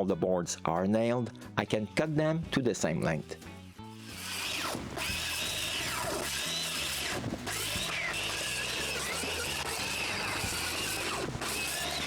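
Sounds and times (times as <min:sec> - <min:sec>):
light background music: 0:00.0 - 0:11.9
power saw cutting wood: 0:03.8 - 0:12.0.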